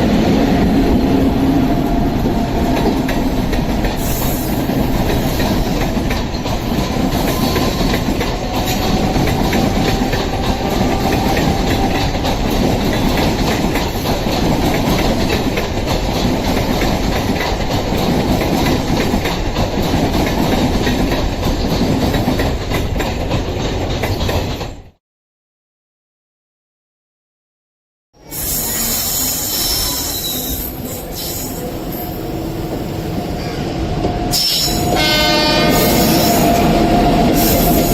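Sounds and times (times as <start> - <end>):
train wheels clattering over rails: 0.0 - 25.0.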